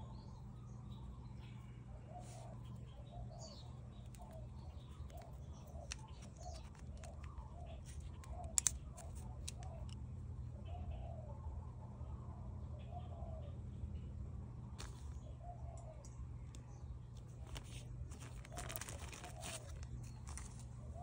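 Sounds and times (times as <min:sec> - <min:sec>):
bird calling: 0:00.0 - 0:10.0, 0:17.4 - 0:21.0
low steady hum: 0:00.0 - 0:21.0
sharp clicks: 0:05.0 - 0:10.0.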